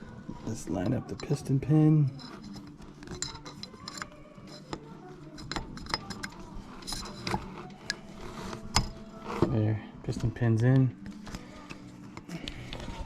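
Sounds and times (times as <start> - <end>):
small metal clicks and taps: 2.2 - 8.0.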